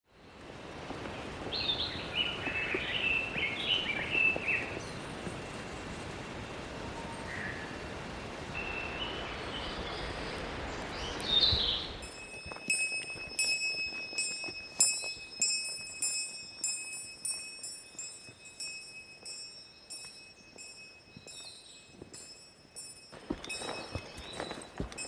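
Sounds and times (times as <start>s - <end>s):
outdoor hiss: 0.1s - 12.7s
bird chirps: 8.6s - 22.5s, 23.2s - 25.0s
small bell jingling: 12.0s - 25.0s.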